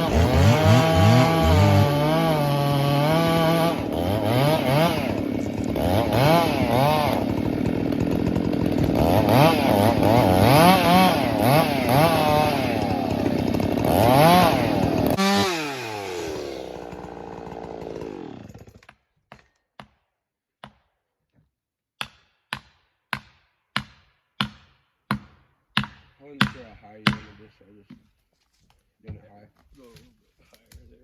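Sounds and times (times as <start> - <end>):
chainsaw revving: 0.0 - 18.8.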